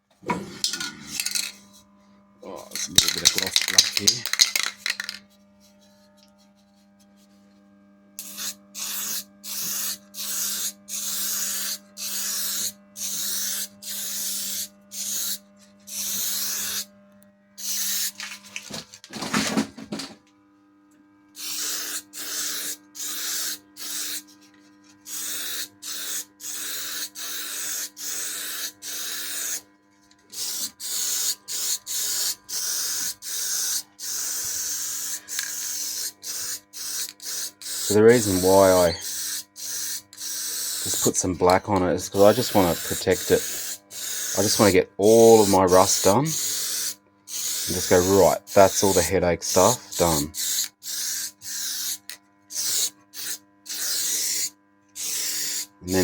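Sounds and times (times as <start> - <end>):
aerosol spray bursts: 8.2 - 16.9, 17.6 - 18.4, 21.4 - 24.4, 25.0 - 29.6, 30.3 - 41.1, 42.2 - 44.7, 45.4 - 55.7.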